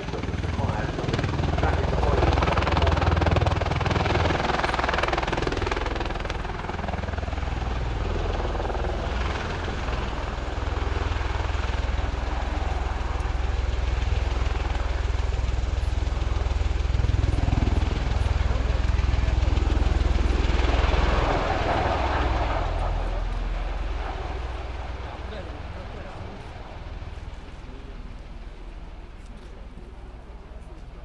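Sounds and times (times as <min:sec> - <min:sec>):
low thrum of aircraft rotors: 0:00.0 - 0:31.0
turboshaft engines: 0:00.0 - 0:31.0.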